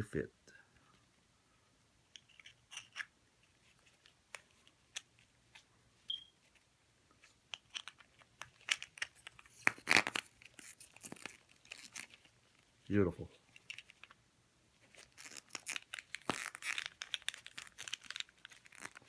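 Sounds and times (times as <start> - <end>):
plastic crinkling: 7.7 - 12.8, 14.8 - 19.0.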